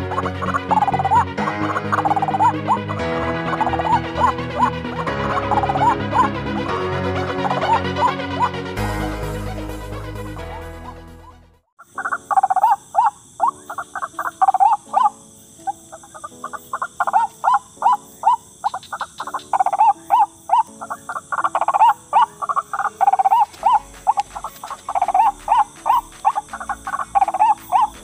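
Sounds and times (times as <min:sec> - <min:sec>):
waterhen croaking calls: 0:00.0 - 0:06.7, 0:07.3 - 0:08.5, 0:11.8 - 0:28.0.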